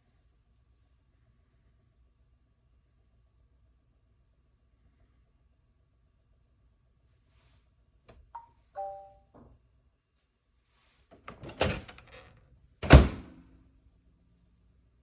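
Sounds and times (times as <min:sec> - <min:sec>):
microwave door thunking shut: 0:11.3 - 0:12.0, 0:12.8 - 0:13.3.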